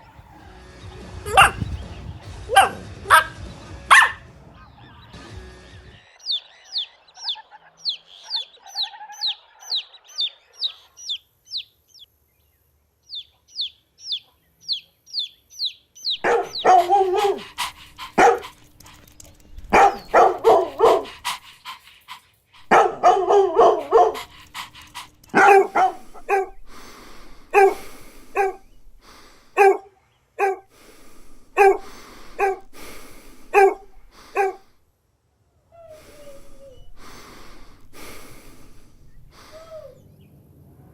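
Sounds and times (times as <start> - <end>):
dogs barking: 1.2 - 5.1, 6.3 - 11.2, 16.1 - 34.7, 35.9 - 40.0
high falling chirps: 6.0 - 12.1, 13.1 - 29.0.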